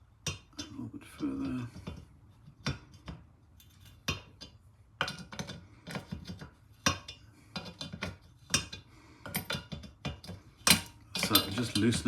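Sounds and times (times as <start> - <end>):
metal spanner clicking: 10.2 - 12.0.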